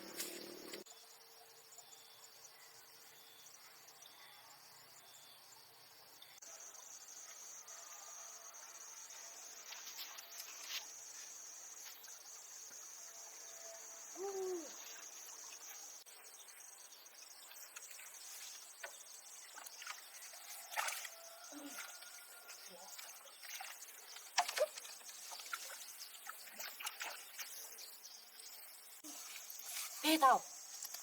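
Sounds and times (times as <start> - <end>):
insects trilling: 6.4 - 31.0.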